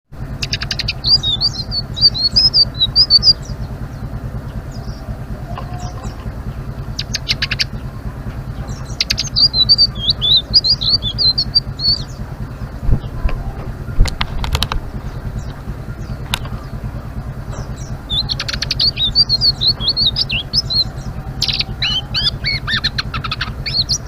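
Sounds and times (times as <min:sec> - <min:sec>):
steady low hum: 0:00.1 - 0:24.0
bird twittering song: 0:00.2 - 0:24.0
sharp clicking bird notes: 0:00.3 - 0:24.0.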